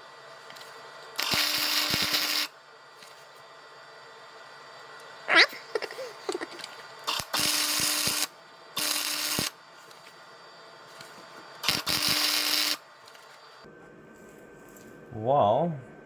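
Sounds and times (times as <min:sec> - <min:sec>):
power drill motor bursts: 0:01.2 - 0:02.5, 0:07.0 - 0:09.6, 0:11.6 - 0:13.5.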